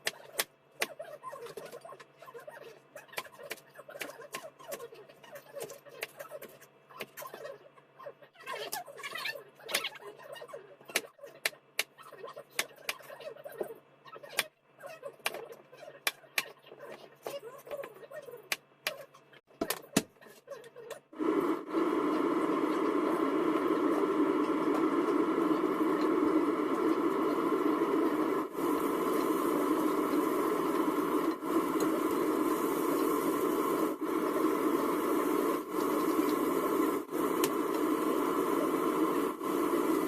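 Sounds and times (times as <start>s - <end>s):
food sizzling in a hot pan: 21.2s - 40.0s.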